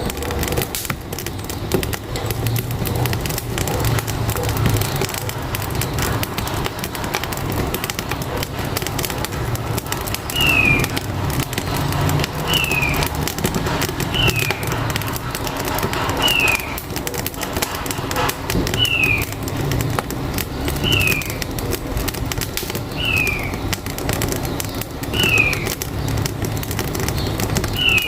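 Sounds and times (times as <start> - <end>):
firewood crackling in stove: 0.0 - 28.0
truck engine rumble: 0.0 - 28.0
bird whistling: 10.3 - 10.9, 12.5 - 13.0, 16.2 - 16.8, 18.8 - 19.2, 20.8 - 21.4, 22.9 - 23.6, 25.1 - 25.7, 27.7 - 28.0.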